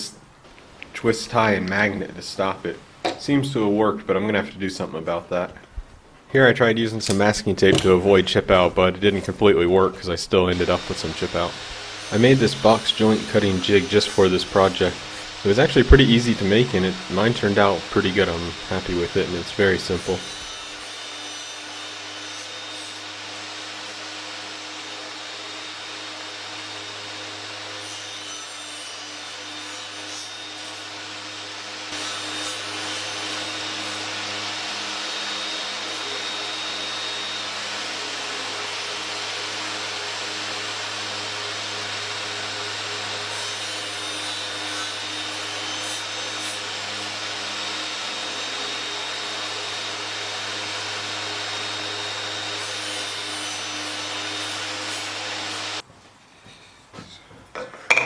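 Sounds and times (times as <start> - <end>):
power tool motor running: 10.5 - 27.8, 30.0 - 55.8.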